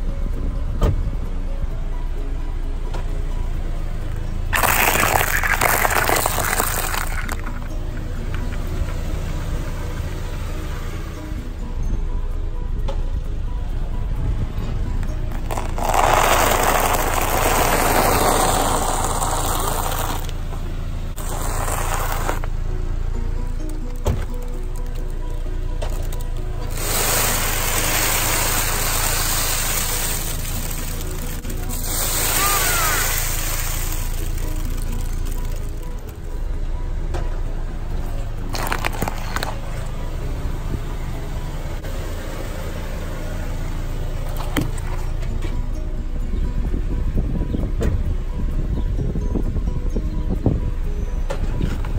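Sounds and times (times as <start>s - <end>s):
car engine hum: 0.0s - 51.9s
tyre crushing cereal: 4.5s - 7.7s, 15.3s - 20.4s, 21.2s - 22.5s, 25.9s - 35.8s, 38.5s - 39.6s
balls cracking under tyre: 4.5s - 8.7s, 15.3s - 20.5s, 21.1s - 22.6s, 38.5s - 39.8s.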